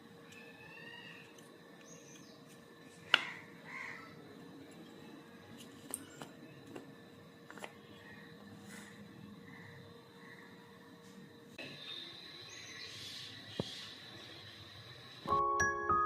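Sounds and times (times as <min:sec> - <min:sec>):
crow cawing: 0:03.1 - 0:04.2, 0:08.1 - 0:10.6.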